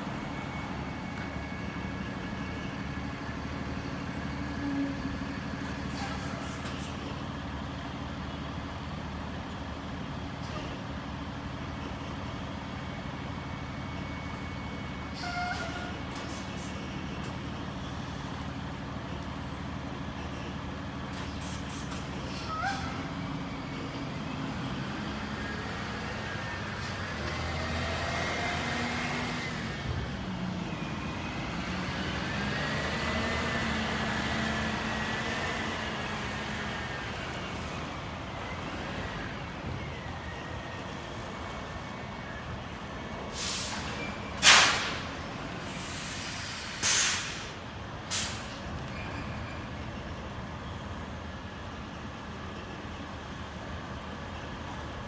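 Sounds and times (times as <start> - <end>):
air brake hisses: 5.8 - 7.1, 15.2 - 16.9, 21.2 - 23.2, 43.3 - 48.6
truck diesel engine revving: 22.3 - 49.0.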